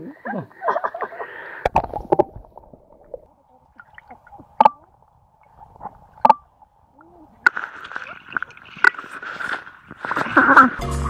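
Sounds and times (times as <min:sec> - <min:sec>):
splashes and clicks: 0:01.6 - 0:10.5
stream water gurgling: 0:01.6 - 0:10.8.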